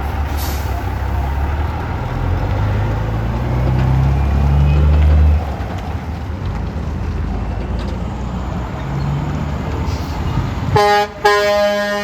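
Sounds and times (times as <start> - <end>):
passing vehicle engine drone: 0.0 - 12.0
traffic rumble: 0.0 - 12.0
wind buffeting microphone: 9.6 - 11.0.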